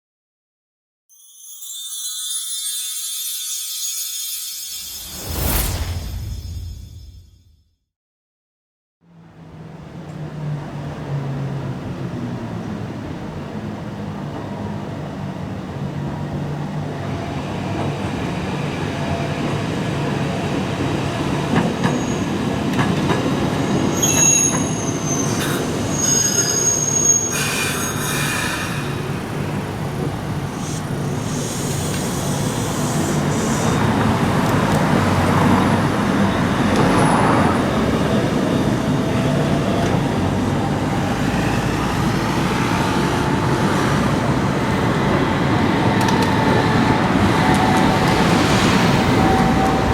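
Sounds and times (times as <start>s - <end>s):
tram running on rails: 9.1s - 49.9s
tram wheels squealing: 16.0s - 49.9s.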